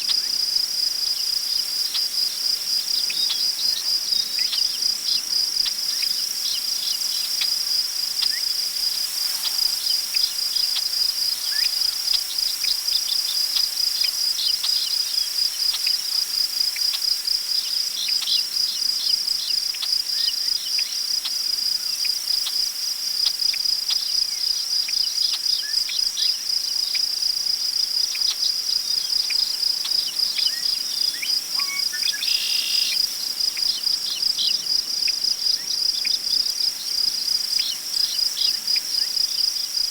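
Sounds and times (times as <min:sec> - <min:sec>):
crickets chirping: 0:00.0 - 0:39.9
short bird calls: 0:31.6 - 0:33.0.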